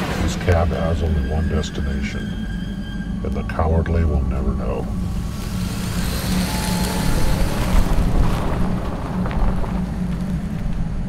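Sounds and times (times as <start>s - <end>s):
car driving on road: 3.1s - 11.0s.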